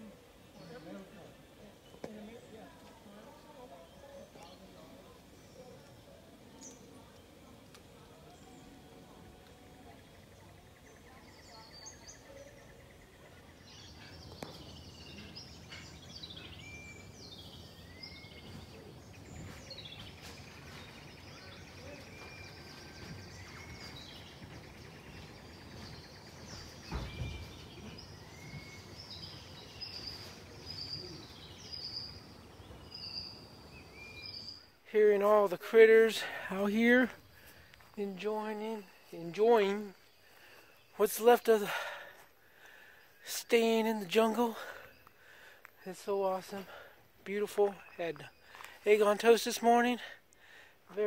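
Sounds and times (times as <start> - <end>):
wild birds calling: 0.0 - 51.0
dull thump: 26.9 - 27.6.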